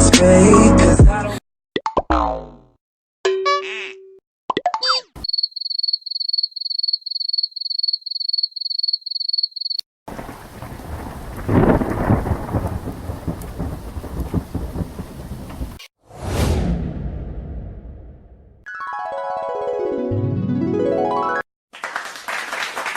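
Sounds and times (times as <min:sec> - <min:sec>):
rain: 0:10.1 - 0:15.8
rolling thunder: 0:10.1 - 0:18.6.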